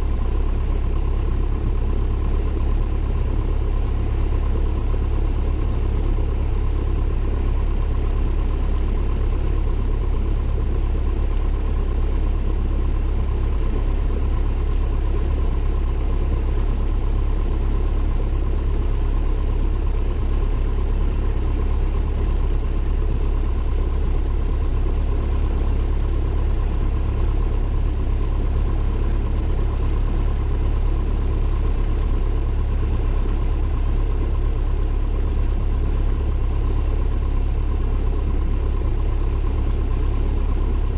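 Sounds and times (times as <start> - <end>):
propeller plane engine drone: 0.0 - 40.9.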